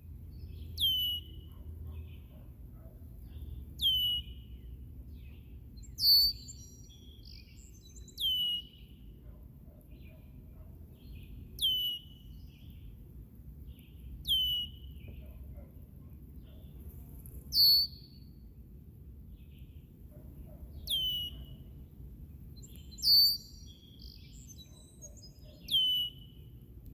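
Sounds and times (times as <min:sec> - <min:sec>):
blackbird whistled calls: 0:00.5 - 0:02.3, 0:03.4 - 0:04.5, 0:05.2 - 0:09.0, 0:11.0 - 0:12.6, 0:14.2 - 0:15.2, 0:17.5 - 0:18.3, 0:20.7 - 0:21.7, 0:22.6 - 0:26.5.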